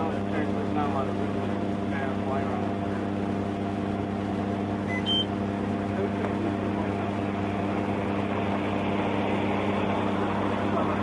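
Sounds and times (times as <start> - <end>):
short electronic beep: 4.9 - 5.3.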